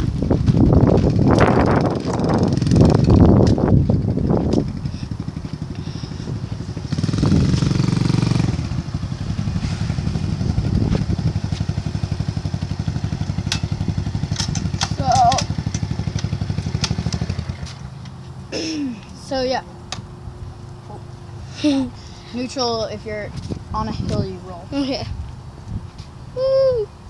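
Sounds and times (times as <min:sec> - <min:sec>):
dirt bike engine running: 0:00.0 - 0:18.5.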